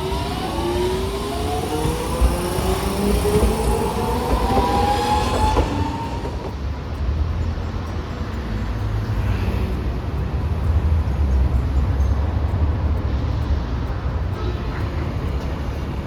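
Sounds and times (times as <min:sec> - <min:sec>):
low rumble: 0:00.0 - 0:07.8
streetcar motor whine: 0:00.0 - 0:16.0.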